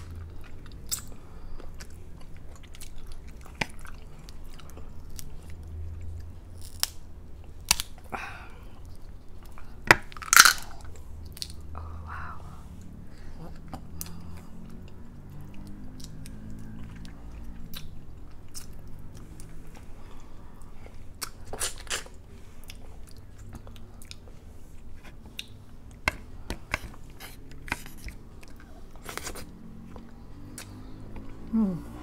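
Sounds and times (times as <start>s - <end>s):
chewing and biting: 0.0s - 8.0s, 13.4s - 31.4s
faint low hum: 0.0s - 32.0s
crunching shells: 10.0s - 11.6s.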